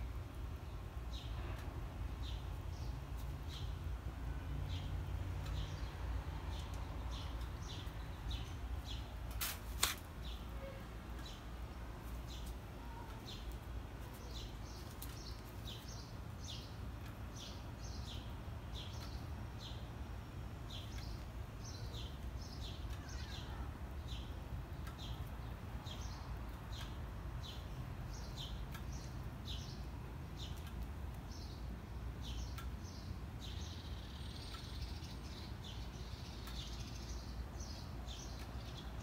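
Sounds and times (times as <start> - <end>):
small bird chirping: 32.2 - 39.0.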